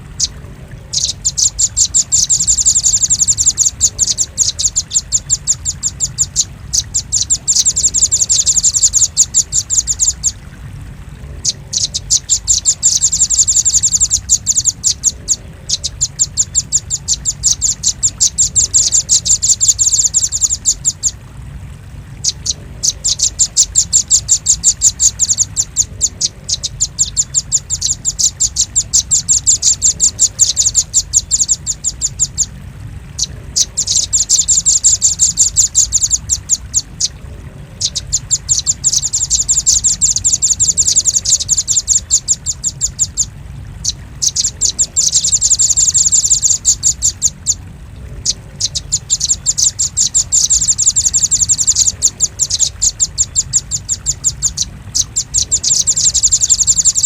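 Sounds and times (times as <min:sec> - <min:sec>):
bird calling high sharp chips: 0:00.0 - 0:10.4, 0:33.2 - 0:36.9, 0:37.8 - 0:47.6, 0:48.2 - 0:57.0
steady low hum: 0:00.0 - 0:57.0.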